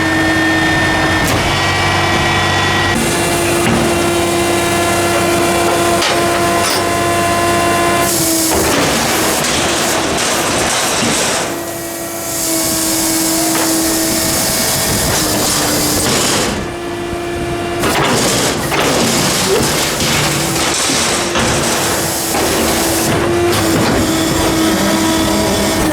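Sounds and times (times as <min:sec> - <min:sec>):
hydraulic pump whine: 0:00.0 - 0:25.9
clatter: 0:08.0 - 0:11.6, 0:17.8 - 0:25.9.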